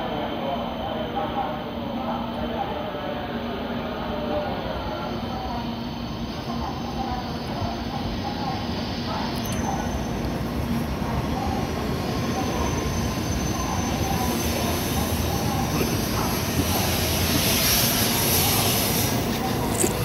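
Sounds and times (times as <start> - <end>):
high-speed train running noise: 0.0 - 20.0
hiss: 14.4 - 19.7.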